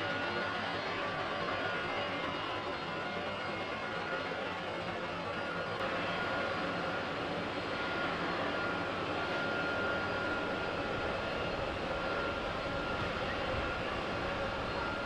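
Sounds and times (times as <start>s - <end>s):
high engine whine: 0.0s - 15.0s.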